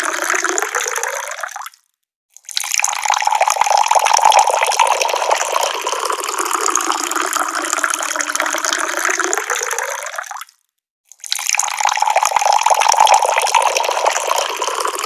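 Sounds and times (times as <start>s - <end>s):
tap water pouring: 2.4s - 10.5s, 11.1s - 15.0s.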